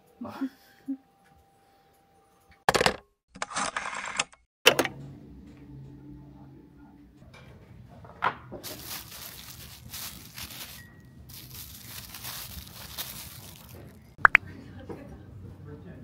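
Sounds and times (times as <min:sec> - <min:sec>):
crinkling and rustling: 0:08.6 - 0:14.2.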